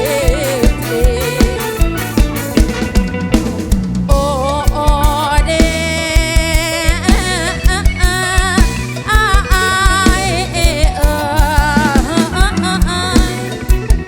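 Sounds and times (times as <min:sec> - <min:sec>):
steady drum beat: 0:00.0 - 0:14.0
wavering lead melody: 0:00.0 - 0:14.0.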